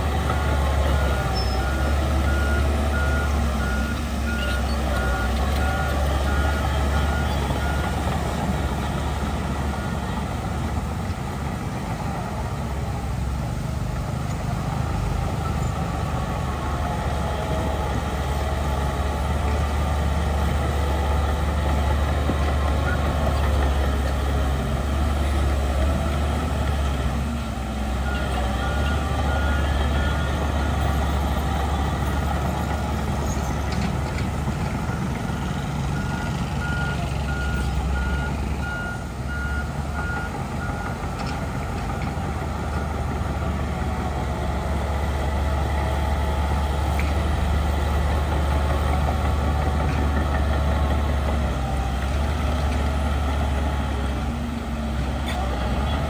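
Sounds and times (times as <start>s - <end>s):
heavy diesel machinery rumble: 0.0s - 56.0s
reversing alarm beeping: 34.9s - 40.9s.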